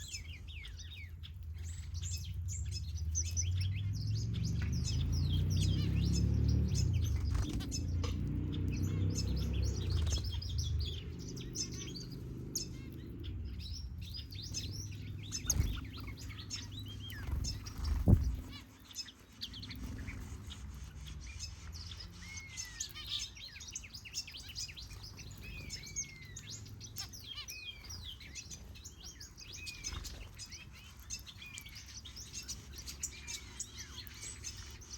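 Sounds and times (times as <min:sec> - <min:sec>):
small birds chirping and whistling: 0:00.0 - 0:34.9
low droning rumble: 0:00.6 - 0:18.6.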